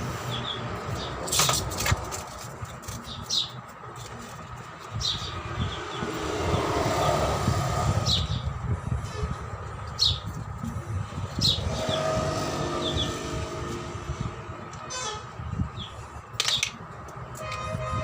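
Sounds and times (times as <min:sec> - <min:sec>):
low vehicle rumble: 0:00.0 - 0:18.0.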